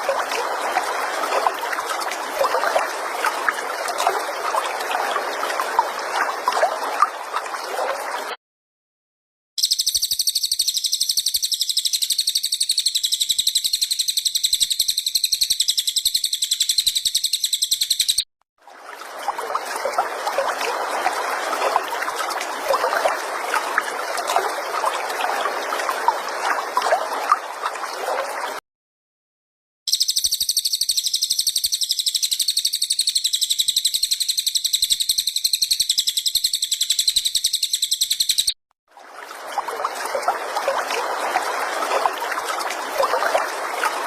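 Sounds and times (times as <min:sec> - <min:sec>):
high-pitched bird trill: 0:09.6 - 0:18.2, 0:29.9 - 0:38.6.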